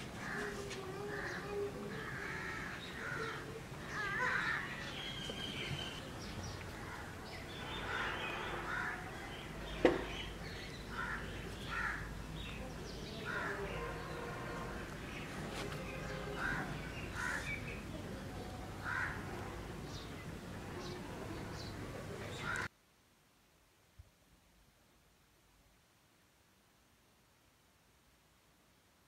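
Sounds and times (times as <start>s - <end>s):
birds calling: 1.1s - 19.3s, 20.8s - 22.7s.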